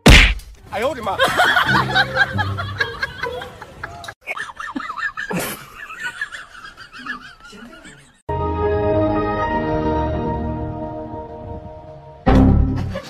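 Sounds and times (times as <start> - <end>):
people laughing and snickering: 1.1 - 8.2, 12.7 - 13.0.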